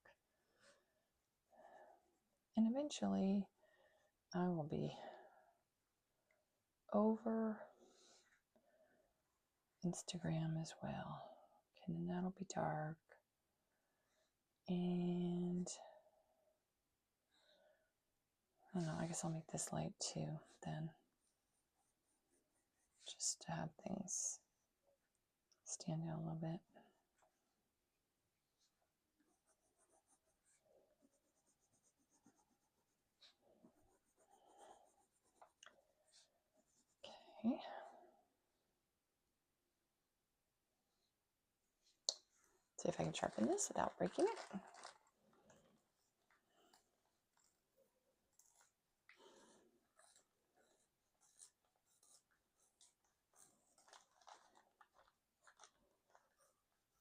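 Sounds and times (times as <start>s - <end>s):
pencil scratching on paper: 29.2s - 35.6s, 50.0s - 53.7s.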